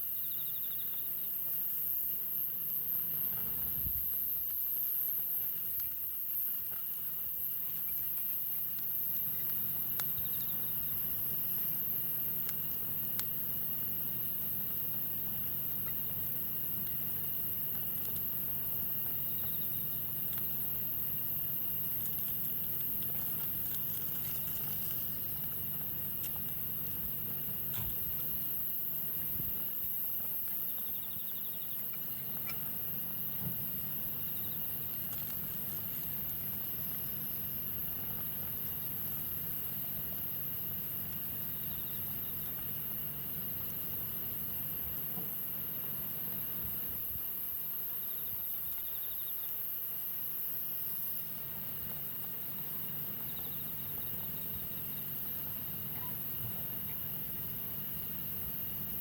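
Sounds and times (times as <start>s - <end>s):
crickets chirping: 0.0s - 59.0s
campfire burning: 3.0s - 31.1s, 31.9s - 41.7s
fire crackles and pops: 5.8s - 30.8s.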